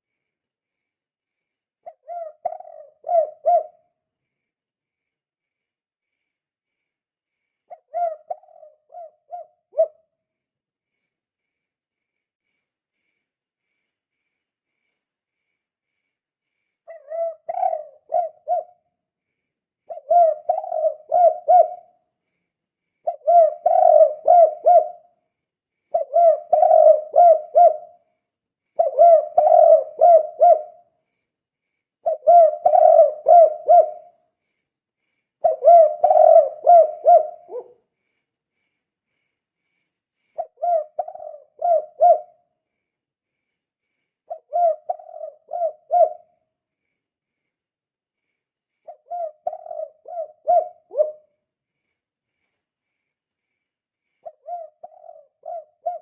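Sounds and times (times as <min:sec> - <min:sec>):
dove cooing: 0:01.8 - 0:03.9, 0:07.7 - 0:10.0, 0:16.9 - 0:18.8, 0:19.9 - 0:22.0, 0:23.0 - 0:25.1, 0:25.9 - 0:28.0, 0:28.8 - 0:30.8, 0:32.0 - 0:34.2, 0:35.4 - 0:37.8, 0:40.4 - 0:42.4, 0:44.3 - 0:46.4, 0:48.8 - 0:51.3, 0:54.2 - 0:56.0.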